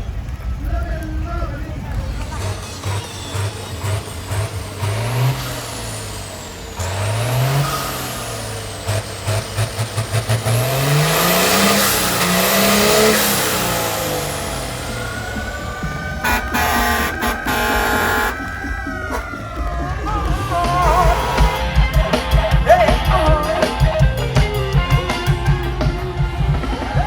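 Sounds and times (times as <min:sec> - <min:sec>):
truck engine revving: 0:00.0 - 0:27.0
high whistle: 0:11.2 - 0:22.0.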